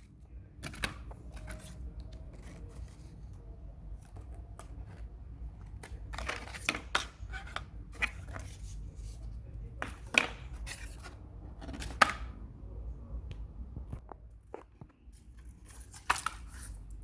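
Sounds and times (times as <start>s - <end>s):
rustling of crochet piece: 0.0s - 11.6s.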